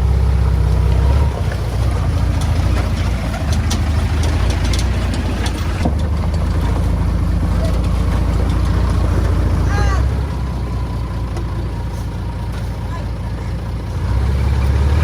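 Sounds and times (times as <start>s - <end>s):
bulldozer diesel engine running: 0.0s - 15.0s
light metal clanks and knocks: 0.9s - 9.7s.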